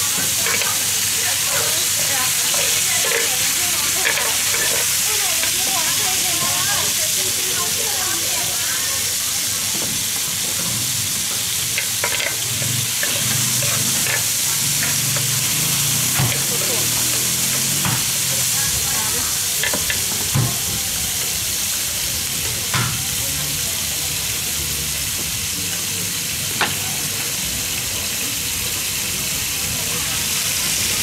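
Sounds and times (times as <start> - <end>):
food sizzling on a griddle: 0.0 - 31.0
metal tongs clicking on pan: 0.2 - 5.7, 11.4 - 15.3, 16.2 - 17.6, 19.6 - 20.4.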